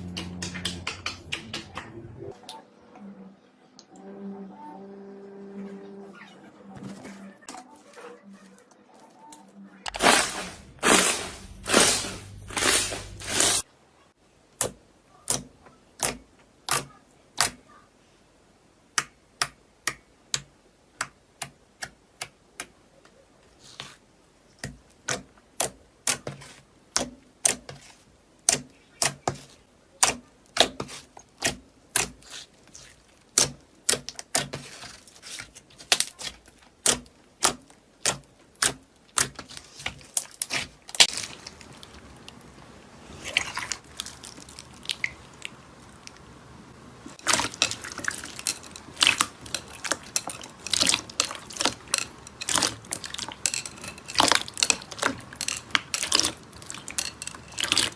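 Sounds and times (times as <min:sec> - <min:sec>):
brittle material crunching by hand: 0:09.9 - 0:13.7, 0:31.5 - 0:42.4, 0:47.2 - 0:57.9.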